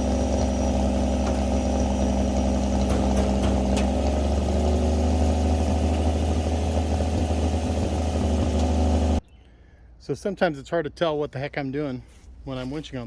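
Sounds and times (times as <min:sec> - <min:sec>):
truck engine running: 0:00.0 - 0:09.2.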